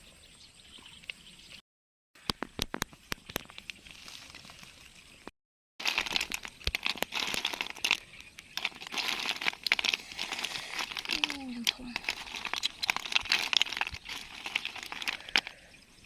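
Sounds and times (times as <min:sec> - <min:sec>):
crinkling handling noise: 0:02.6 - 0:05.0, 0:05.8 - 0:15.7.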